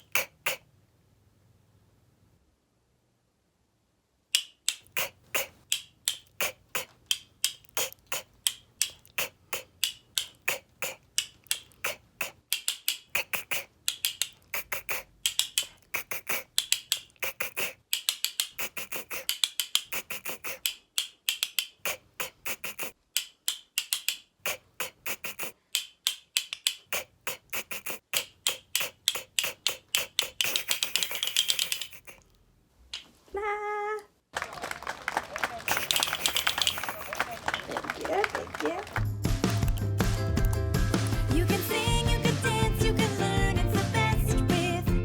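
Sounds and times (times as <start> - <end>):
voice repeating k sound: 0.0 - 0.7, 4.9 - 7.0, 7.6 - 8.4, 9.0 - 12.5, 13.1 - 13.8, 14.4 - 16.6, 17.2 - 17.8, 18.5 - 20.7, 21.8 - 23.0, 24.4 - 25.6, 26.9 - 32.2, 33.3 - 34.1.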